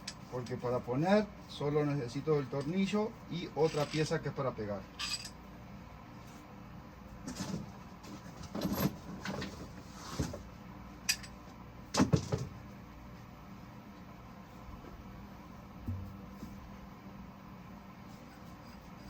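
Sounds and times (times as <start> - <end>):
steel parts clinking: 3.6 - 4.1, 5.0 - 5.4.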